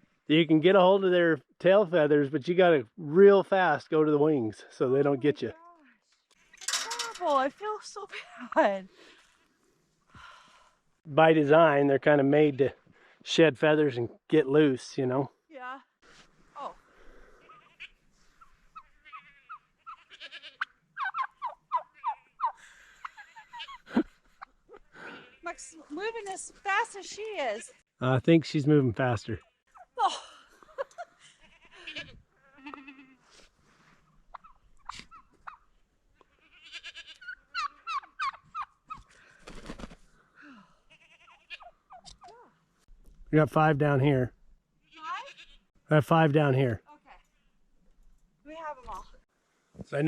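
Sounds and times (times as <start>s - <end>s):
turkey yelping and clucking: 17.5s - 23.8s, 34.3s - 35.8s, 36.7s - 39.2s.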